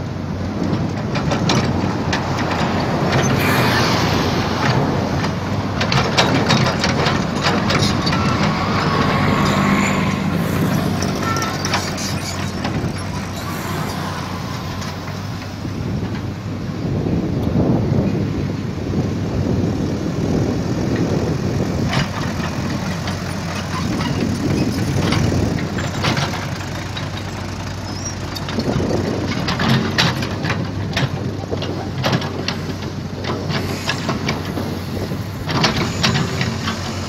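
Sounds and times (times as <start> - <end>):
excavator diesel engine running: 0.0 - 37.0
metal clanks and knocks: 4.6 - 16.4.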